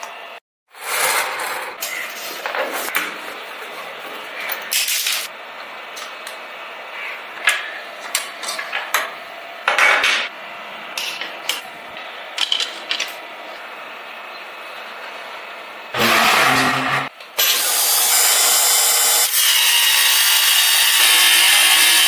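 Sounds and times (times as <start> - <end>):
small parts clicking and clinking: 12.3 - 13.2.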